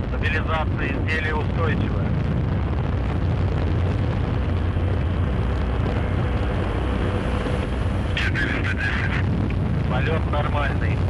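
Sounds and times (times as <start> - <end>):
low rumble and hiss: 0.0 - 11.0.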